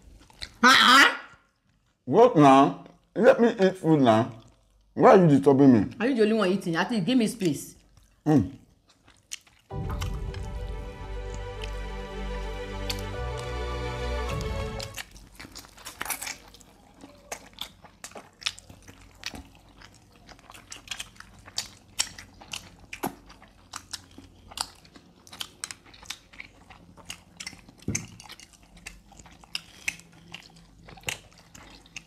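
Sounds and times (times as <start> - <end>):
wet chewing: 0.0 - 0.6, 7.4 - 10.2, 14.9 - 32.0
background music: 9.7 - 15.0.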